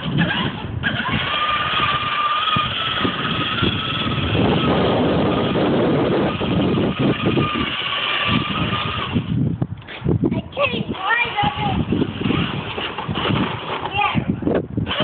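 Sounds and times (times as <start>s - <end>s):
electric motor whine: 0.0s - 9.4s
plastic wheels rolling: 0.0s - 9.4s, 10.5s - 15.0s.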